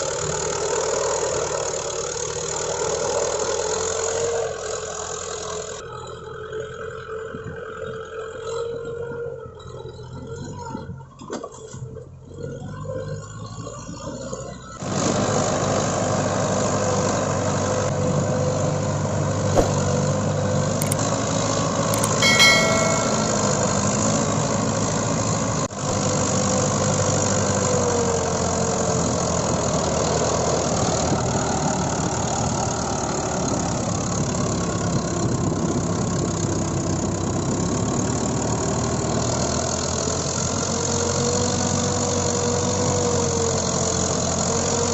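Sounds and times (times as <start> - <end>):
brief high-pitched tone: 22.0 - 23.7.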